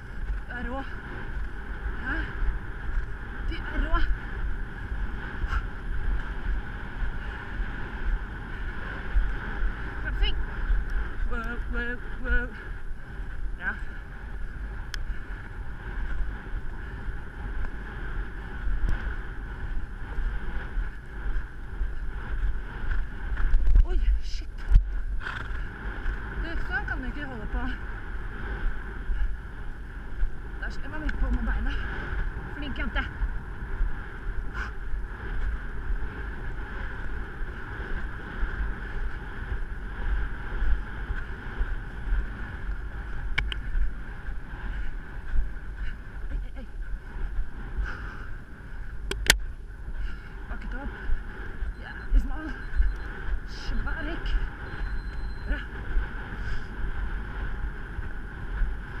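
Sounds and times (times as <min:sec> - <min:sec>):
wind buffeting microphone: 0:00.0 - 0:59.0
sharp click: 0:49.1 - 0:49.4.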